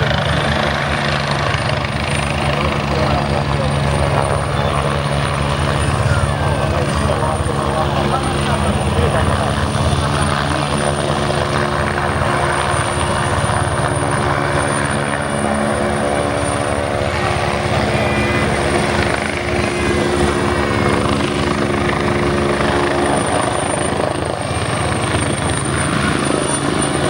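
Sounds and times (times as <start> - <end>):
helicopter rotor and engine: 0.0 - 27.0
high whine: 12.0 - 23.2.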